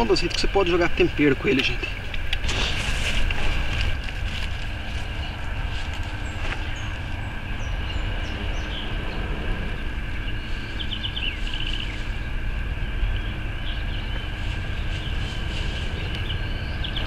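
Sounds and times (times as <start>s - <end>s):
birds chirping: 0.0s - 17.0s
constant high drone: 0.0s - 17.0s
steady low rumble: 0.0s - 17.0s.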